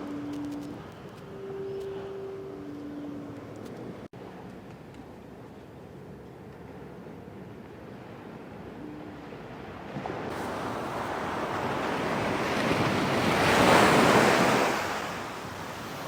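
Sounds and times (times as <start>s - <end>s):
sea wave breaking on shore: 10.0s - 16.0s.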